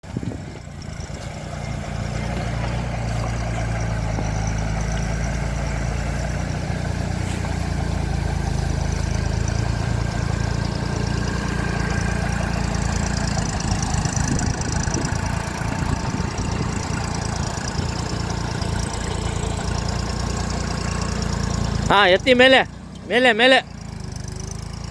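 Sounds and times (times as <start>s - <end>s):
backhoe loader engine running: 0.0s - 24.9s.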